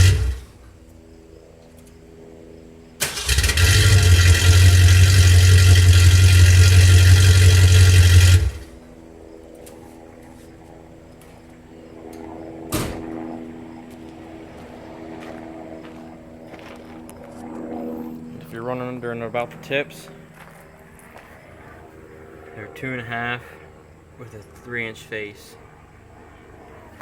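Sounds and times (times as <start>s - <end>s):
car engine revving: 0.0s - 0.6s, 3.0s - 8.9s.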